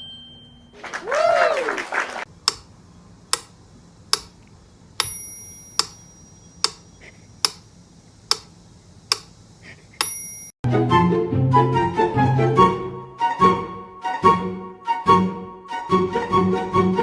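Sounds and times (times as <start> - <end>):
sharp ticks: 2.4 - 7.7, 8.3 - 9.4.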